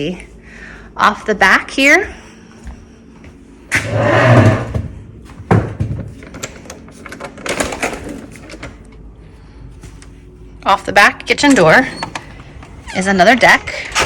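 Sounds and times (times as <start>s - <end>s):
door rumbling and scraping: 3.7s - 5.0s.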